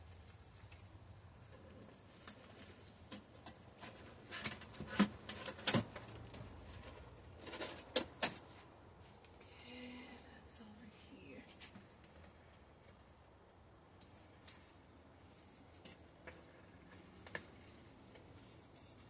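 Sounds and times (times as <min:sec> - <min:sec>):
plant cover rustling: 0:14.0 - 0:19.0.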